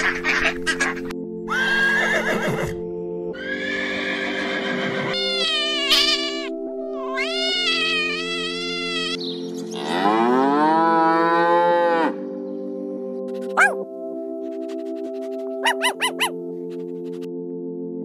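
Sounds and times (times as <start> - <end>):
background music: 0.0 - 18.0
horse neighing: 1.5 - 2.8, 3.4 - 6.5
kitten meowing: 5.2 - 9.2
cow mooing: 9.8 - 12.2.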